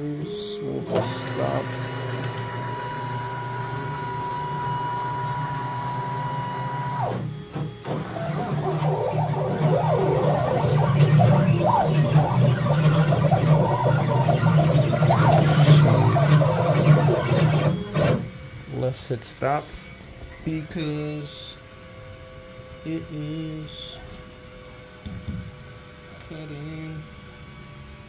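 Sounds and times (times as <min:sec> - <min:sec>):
stepper motors whining: 0:00.0 - 0:24.8
low hum: 0:00.9 - 0:18.8.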